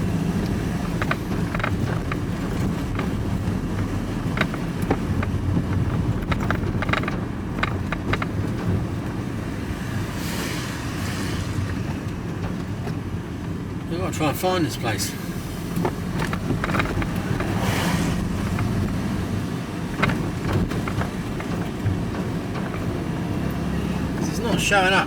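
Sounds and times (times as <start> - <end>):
engine and road noise: 0.0 - 25.0
small clicks and rattles: 0.3 - 9.3, 15.7 - 17.6, 18.2 - 24.6.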